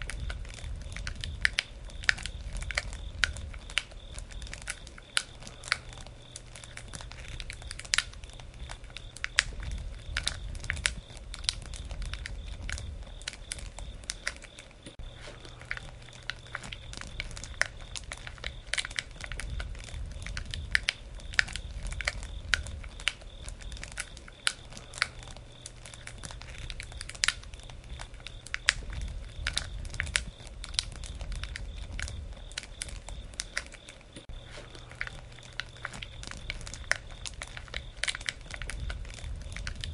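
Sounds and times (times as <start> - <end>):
campfire crackling and popping: 0.0 - 39.9
low rumble of flame: 0.0 - 39.9.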